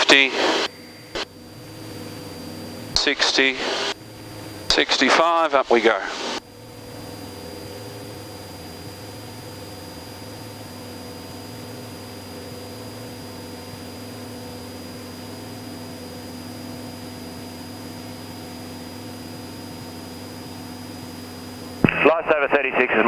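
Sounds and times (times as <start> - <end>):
light aircraft engine drone: 0.0 - 23.0
thin high whine: 0.0 - 23.0.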